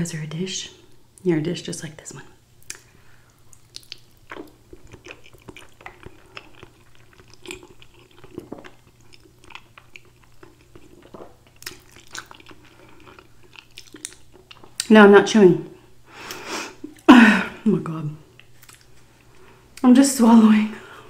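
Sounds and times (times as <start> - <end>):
person chewing noodles: 2.6 - 14.9, 18.3 - 19.8.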